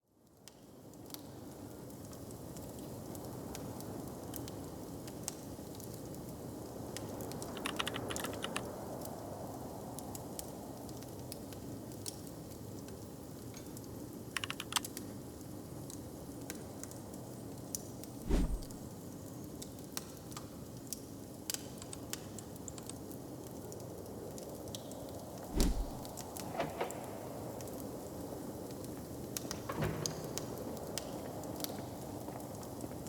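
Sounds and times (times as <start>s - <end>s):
low background rumble: 18.3s - 18.8s
wood fire crackling: 18.3s - 18.8s, 25.4s - 29.5s, 30.6s - 33.0s.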